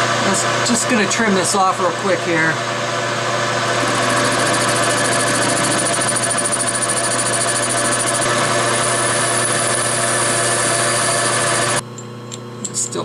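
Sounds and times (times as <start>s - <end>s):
metalworking lathe humming: 0.5s - 11.8s
cutting tool trimming steel: 3.8s - 11.8s.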